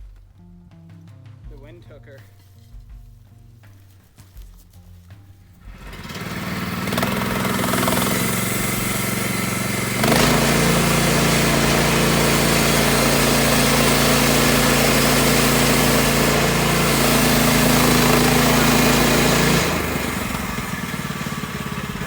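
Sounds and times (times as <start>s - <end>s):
small gasoline engine running: 5.6s - 22.0s.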